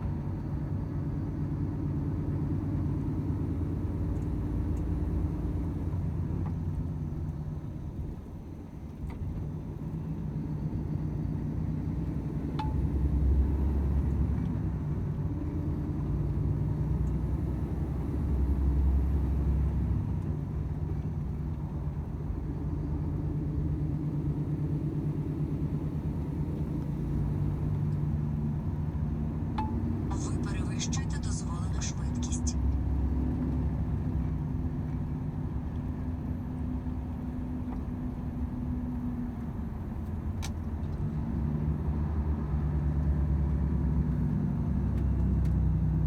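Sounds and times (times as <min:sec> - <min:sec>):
road rumble: 0:00.0 - 0:46.0
truck diesel engine running: 0:30.1 - 0:32.6.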